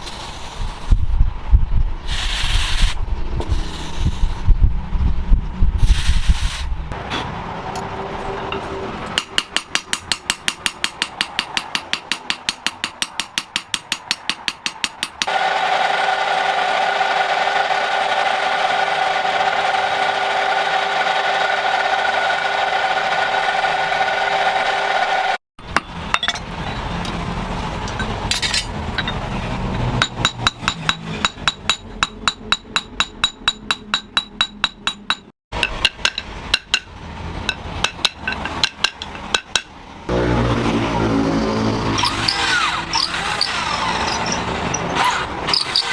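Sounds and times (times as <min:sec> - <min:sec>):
hammer striking metal anvil: 0:08.5 - 0:15.3, 0:25.7 - 0:27.2, 0:30.0 - 0:39.8.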